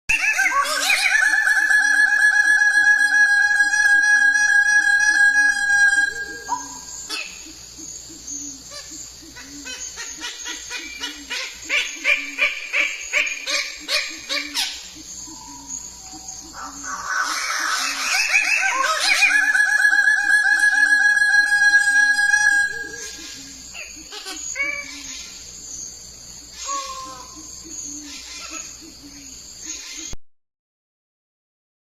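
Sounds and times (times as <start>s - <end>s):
bird rasping call: 5.0s - 25.4s, 26.6s - 30.2s.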